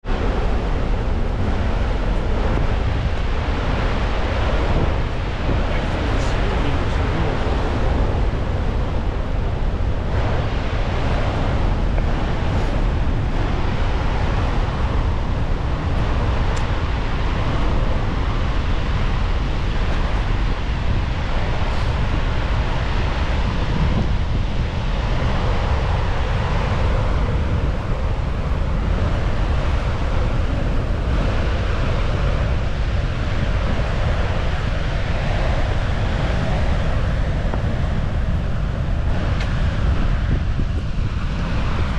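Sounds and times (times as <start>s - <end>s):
waterfall rushing: 0.1s - 27.3s.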